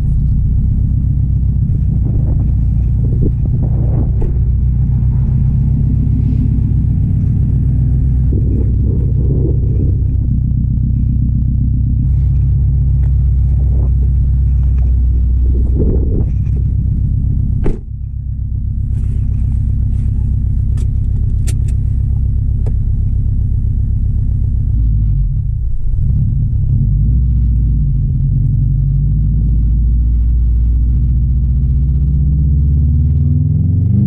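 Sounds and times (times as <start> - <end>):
car engine rumbling: 0.0 - 34.0
sharp click: 20.8 - 21.8.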